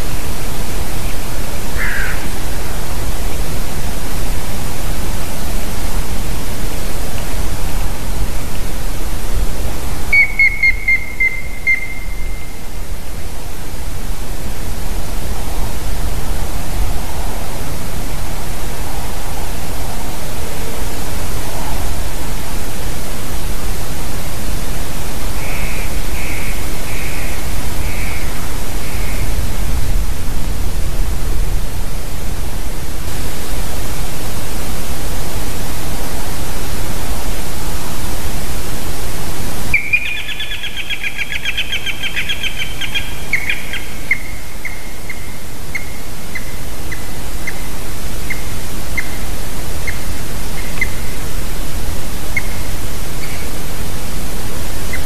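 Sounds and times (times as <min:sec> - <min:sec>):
steady loud hiss: 0:00.0 - 0:55.0
wild birds calling: 0:00.9 - 0:03.6, 0:10.1 - 0:12.9, 0:25.3 - 0:29.5, 0:39.7 - 0:51.4, 0:52.2 - 0:53.6, 0:54.8 - 0:55.0.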